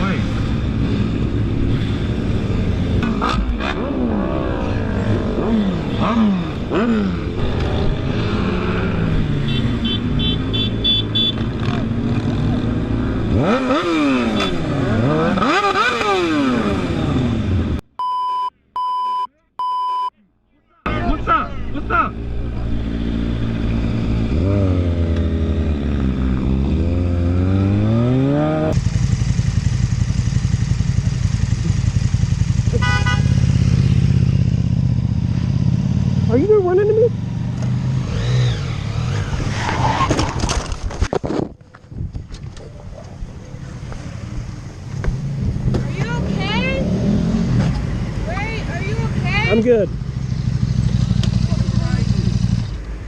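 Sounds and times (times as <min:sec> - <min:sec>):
motorcycle engine revving: 0:00.0 - 0:17.8, 0:20.9 - 0:41.0, 0:42.6 - 0:53.0
short high beeps: 0:18.0 - 0:20.1.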